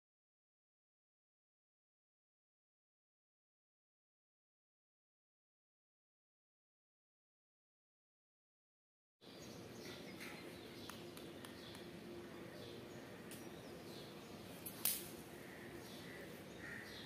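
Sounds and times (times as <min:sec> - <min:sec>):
bird chirps: 0:09.2 - 0:14.7
steady low hum: 0:09.2 - 0:17.0
sharp click: 0:14.6 - 0:15.2.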